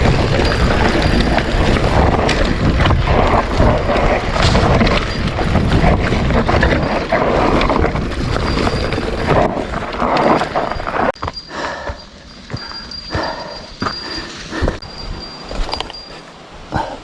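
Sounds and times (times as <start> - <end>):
wind buffeting microphone: 0.0 - 11.2
bike knocks and rattles: 0.0 - 11.4
mountain bike rolling over trail: 0.0 - 16.6.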